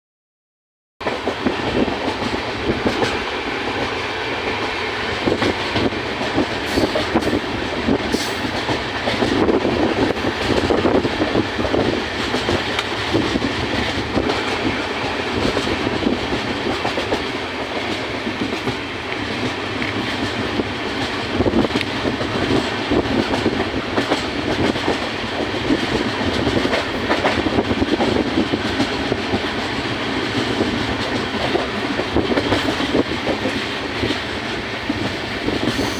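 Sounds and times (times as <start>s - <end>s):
clickety-clack of rail joints: 1.0s - 35.9s
train wheels rumbling: 1.0s - 35.9s.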